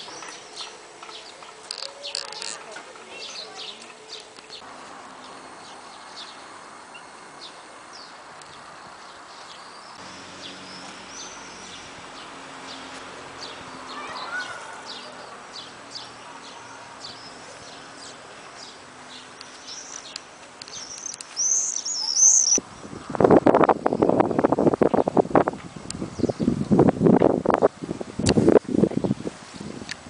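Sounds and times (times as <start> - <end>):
birds chirping: 0.0 - 22.6.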